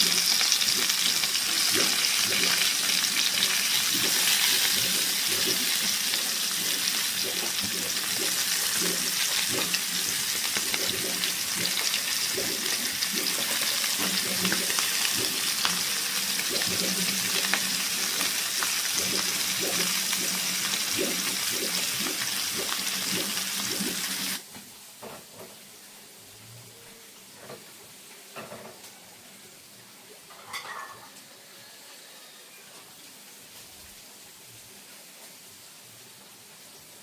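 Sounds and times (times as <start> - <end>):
food frying in hot oil: 0.0 - 24.4.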